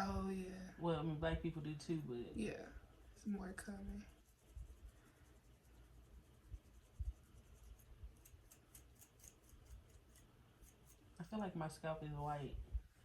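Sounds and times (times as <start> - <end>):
scratching through hair: 3.2 - 11.2.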